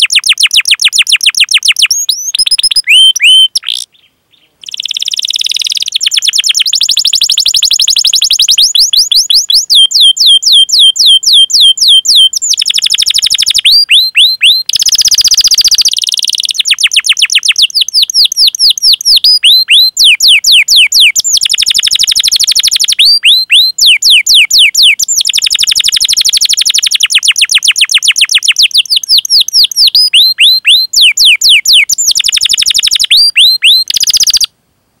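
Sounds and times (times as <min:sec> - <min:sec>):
canary singing: 0:00.0 - 0:34.5.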